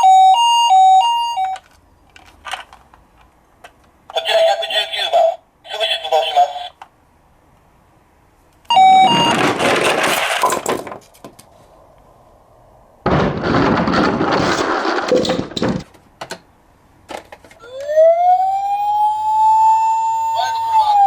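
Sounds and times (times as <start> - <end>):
crash with shattering glass: 9.0 - 10.9, 13.1 - 15.8.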